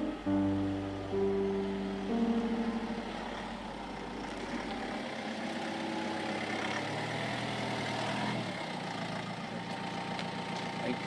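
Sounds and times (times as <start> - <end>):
music: 0.0 - 4.2
car engine driving and idling: 0.0 - 11.0.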